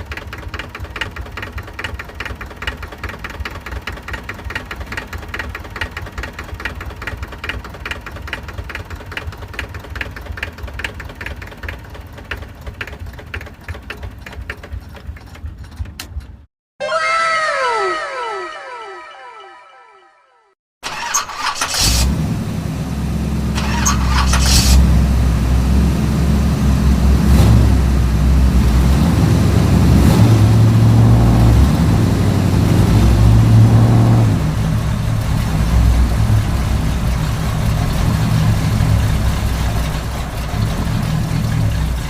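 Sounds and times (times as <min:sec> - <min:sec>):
tractor engine running: 0:00.0 - 0:16.5, 0:20.8 - 0:42.0.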